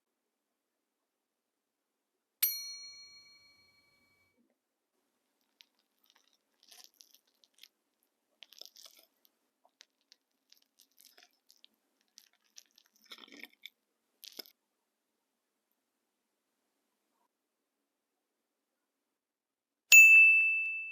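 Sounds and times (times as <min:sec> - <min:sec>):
soft chewing: 0:05.2 - 0:14.6.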